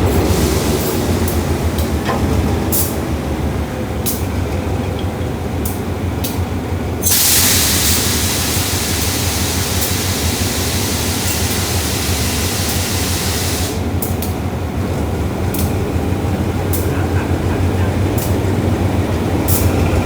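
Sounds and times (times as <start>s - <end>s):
diesel engine rumble: 0.0s - 20.0s
loud hiss: 7.0s - 14.0s.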